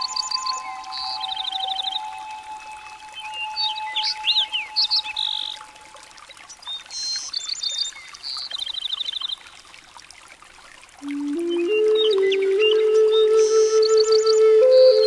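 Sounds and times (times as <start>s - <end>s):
birds chirping and trilling: 0.0s - 9.5s
held low note: 11.0s - 15.0s.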